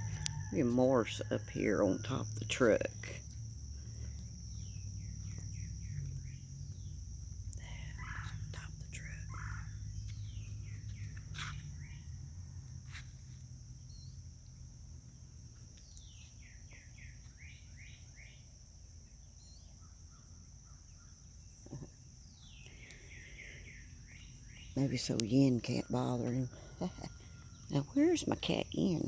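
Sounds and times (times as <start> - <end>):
low hum: 0.0 - 16.0
insects buzzing: 0.0 - 29.0.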